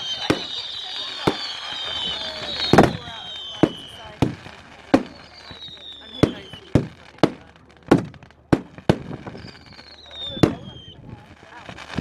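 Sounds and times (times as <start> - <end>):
firework whistle falling in pitch: 0.0 - 4.4, 5.0 - 6.8, 9.2 - 11.1
fireworks bangs: 0.0 - 12.0.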